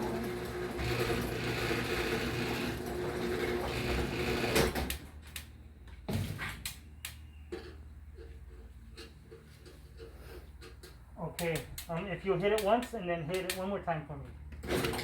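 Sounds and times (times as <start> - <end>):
chain garage door opener running: 0.0 - 5.0, 14.6 - 15.0.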